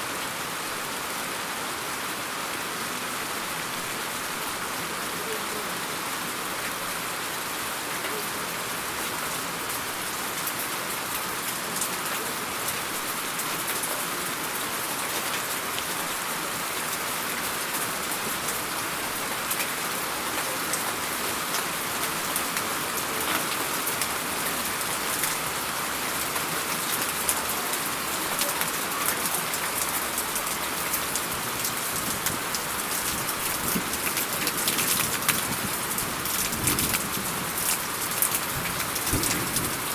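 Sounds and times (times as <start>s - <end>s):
steady rain falling: 0.0s - 39.9s
raindrops ticking: 19.4s - 39.9s.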